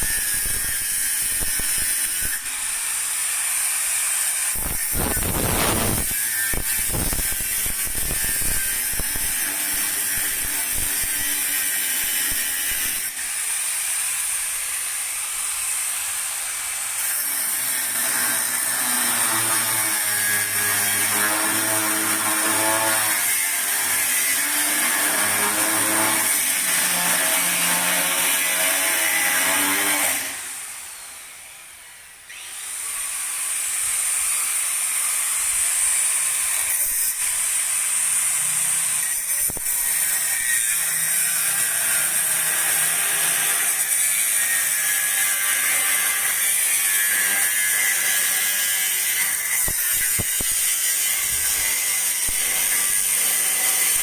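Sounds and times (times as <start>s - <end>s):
power tool running: 0.0s - 31.4s.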